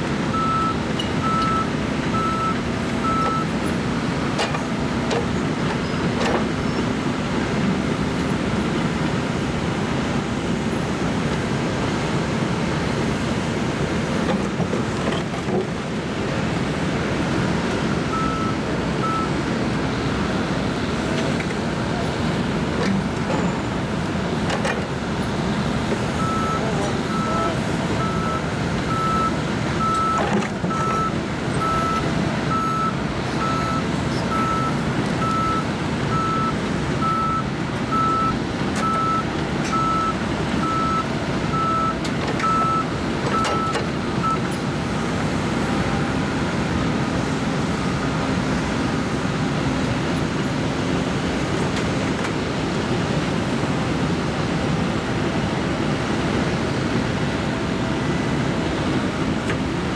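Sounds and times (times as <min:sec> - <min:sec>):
diesel engine running: 0:00.0 - 0:59.9
reversing alarm beeping: 0:00.3 - 0:03.5, 0:18.1 - 0:19.4, 0:26.2 - 0:44.6.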